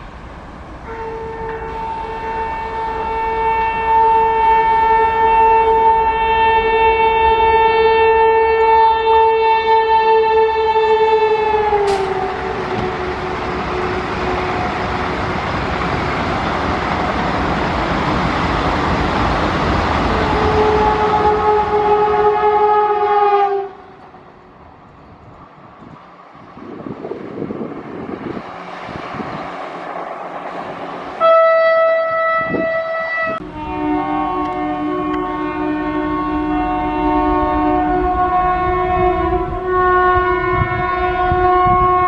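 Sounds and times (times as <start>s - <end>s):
rush of passing train: 0.0s - 42.0s
train horn blowing: 0.8s - 15.1s, 20.0s - 24.2s, 28.6s - 42.0s.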